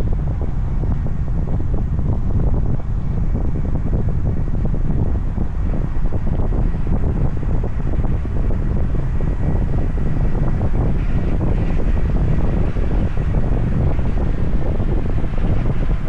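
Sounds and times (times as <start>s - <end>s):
car road noise: 0.0s - 16.0s
wind buffeting microphone: 0.0s - 16.0s.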